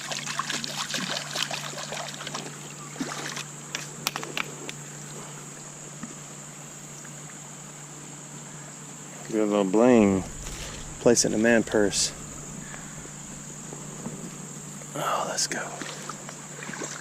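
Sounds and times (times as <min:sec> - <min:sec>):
creek water splashing: 0:00.0 - 0:05.7, 0:10.0 - 0:17.0.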